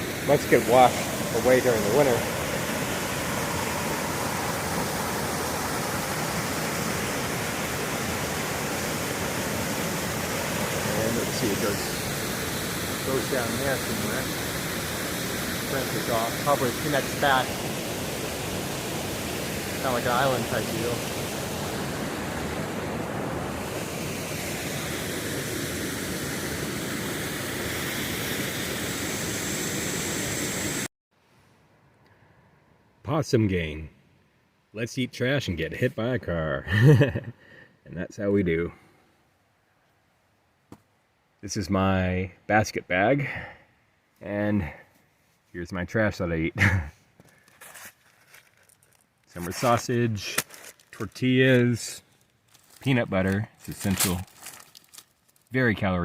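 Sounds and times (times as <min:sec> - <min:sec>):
creek water rushing over stones: 0:00.0 - 0:30.8, 0:48.4 - 0:51.8.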